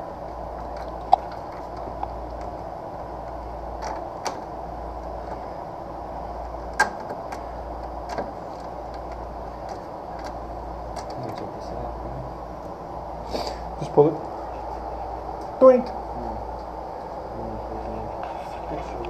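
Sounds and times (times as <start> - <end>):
steady low hum: 0.0 - 19.0
sharp clicks and knocks: 6.7 - 11.5.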